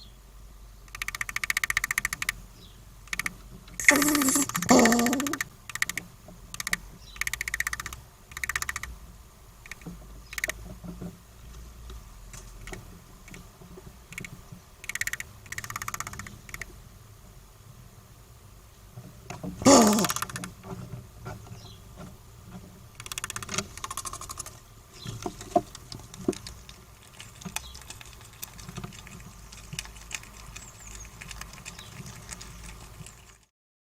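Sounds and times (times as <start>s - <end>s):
squirrel chattering: 0.9s - 2.4s, 3.1s - 6.0s, 6.6s - 8.9s, 9.7s - 10.5s, 14.2s - 16.7s, 19.6s - 20.5s.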